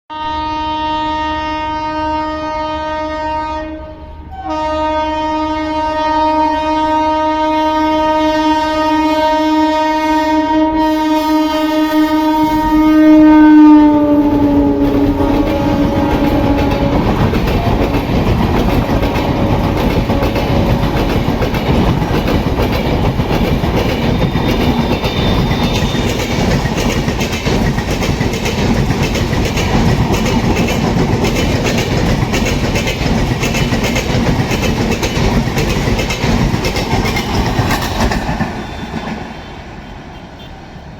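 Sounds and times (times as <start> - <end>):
locomotive horn: 0.1 - 21.7, 24.2 - 26.6, 37.8 - 40.8
train wheels rumbling and clattering: 11.7 - 40.9.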